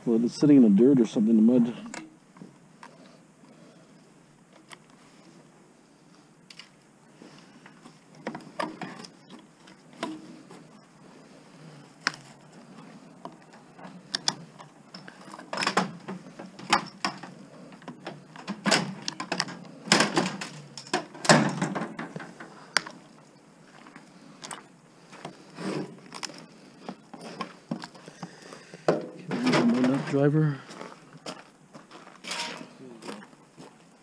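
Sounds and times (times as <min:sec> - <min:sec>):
metal knocks clanks and rattles: 0:13.8 - 0:22.8, 0:28.8 - 0:30.2.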